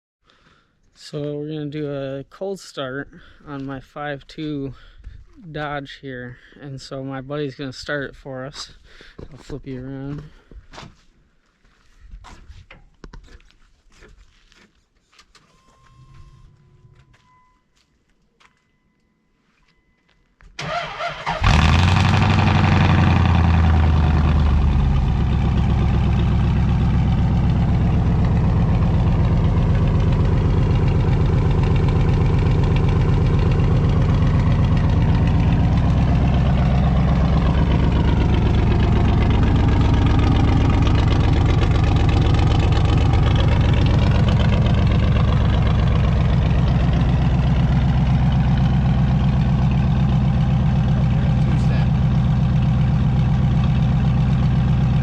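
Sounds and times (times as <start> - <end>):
car engine idling: 20.6 - 55.0.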